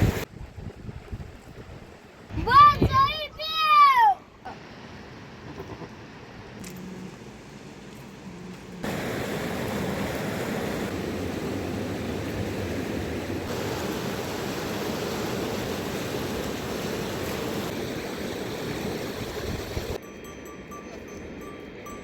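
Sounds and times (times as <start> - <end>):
river water rushing: 8.8 - 20.0.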